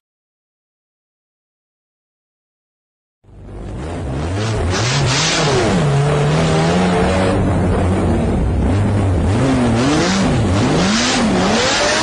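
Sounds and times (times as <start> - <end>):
sports car engine revving: 3.3 - 12.0.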